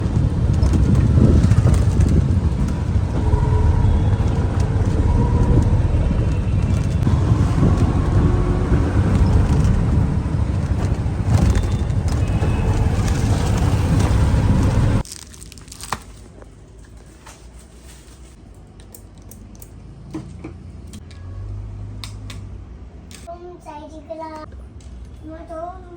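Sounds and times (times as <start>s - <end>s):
road traffic rumble: 0.0s - 15.1s.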